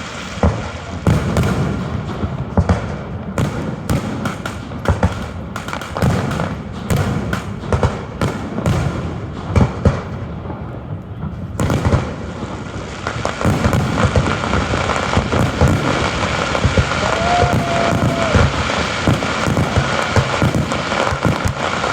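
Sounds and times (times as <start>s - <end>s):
firework crackle: 0.0s - 21.9s
firework shells bursting: 11.0s - 21.9s.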